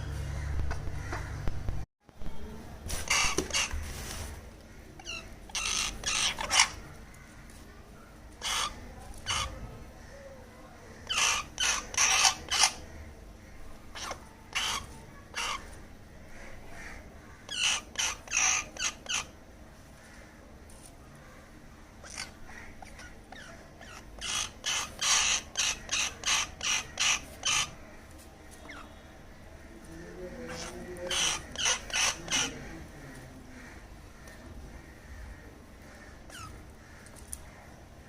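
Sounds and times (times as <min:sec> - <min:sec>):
young crow cawing: 0:04.8 - 0:07.5, 0:08.4 - 0:19.3, 0:21.3 - 0:27.9, 0:30.4 - 0:37.8.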